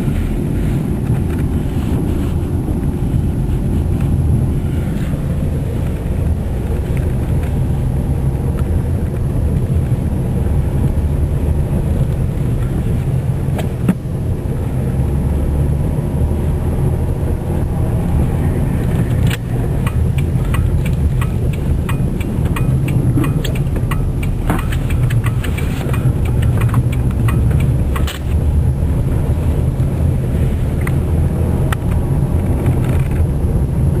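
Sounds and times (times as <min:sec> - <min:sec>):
car engine and road rumble: 0:00.0 - 0:34.0
sharp clicks and crackles: 0:18.8 - 0:28.7, 0:31.6 - 0:33.4.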